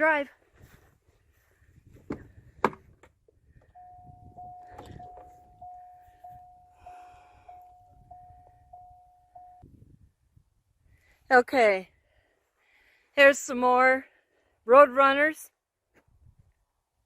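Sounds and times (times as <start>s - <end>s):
vehicle warning chime dinging: 3.6s - 9.7s.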